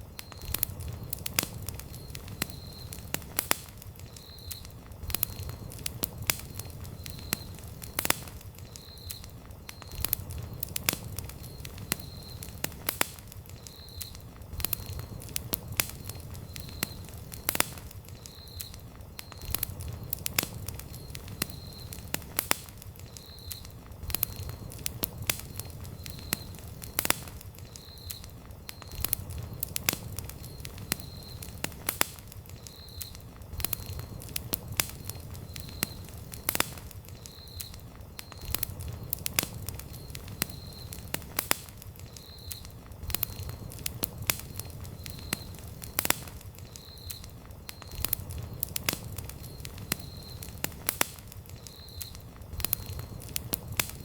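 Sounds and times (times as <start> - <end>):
campfire crackling and popping: 0.0 - 54.0
low rumble of flame: 0.0 - 54.0.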